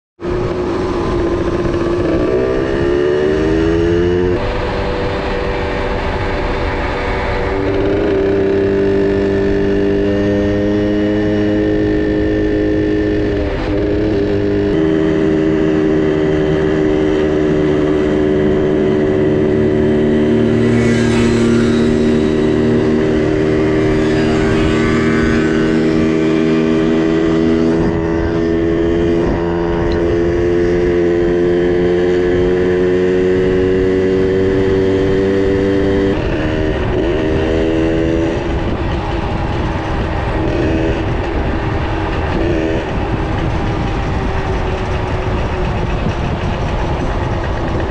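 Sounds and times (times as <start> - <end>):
two-stroke minibike engine running: 16.2 - 47.9.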